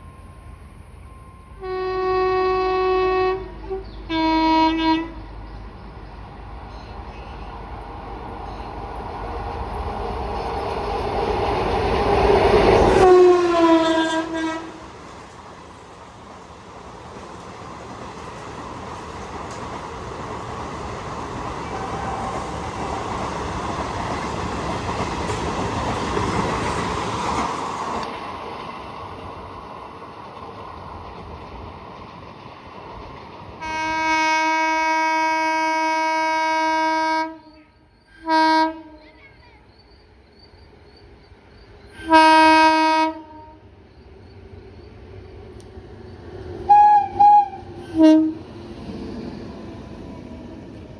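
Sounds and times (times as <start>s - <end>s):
train rumbling along rails: 0.0s - 50.9s
train horn: 1.1s - 5.3s, 12.9s - 15.0s, 21.6s - 23.4s, 33.6s - 39.3s, 42.0s - 43.7s, 46.7s - 48.5s.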